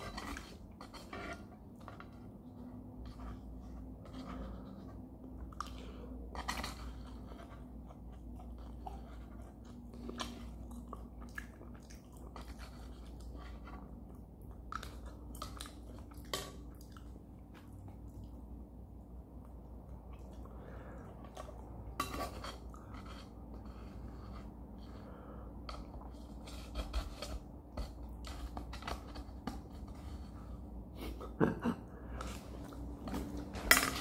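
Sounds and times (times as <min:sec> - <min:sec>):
close-miked chewing: 0:00.0 - 0:26.7.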